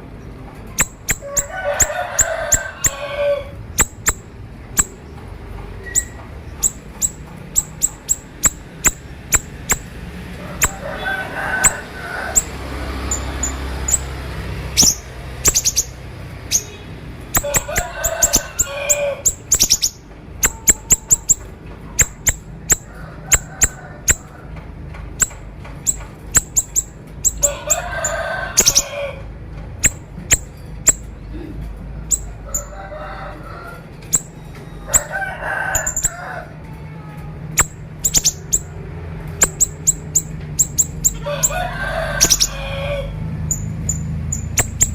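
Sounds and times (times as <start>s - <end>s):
low chattering bird calls: 0.0s - 24.3s, 25.0s - 29.1s, 37.5s - 44.9s
songbird singing clicky notes: 5.8s - 9.9s, 14.8s - 16.7s.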